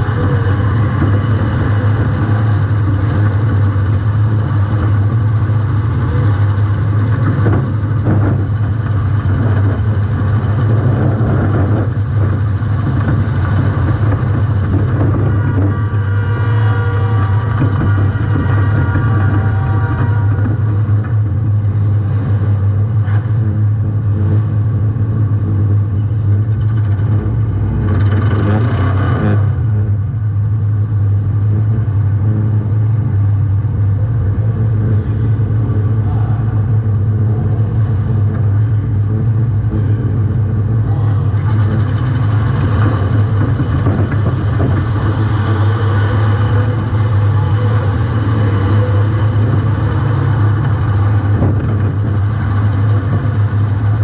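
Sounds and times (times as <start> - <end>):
car engine running loud: 0.0 - 54.0.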